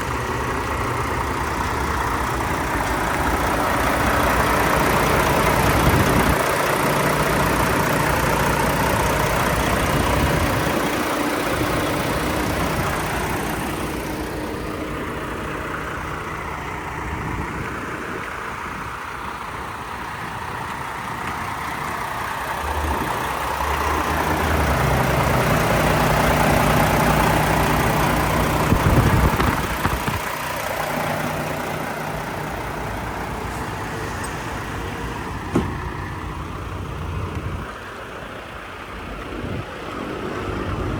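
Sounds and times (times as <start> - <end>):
diesel truck engine idling: 0.0 - 40.9.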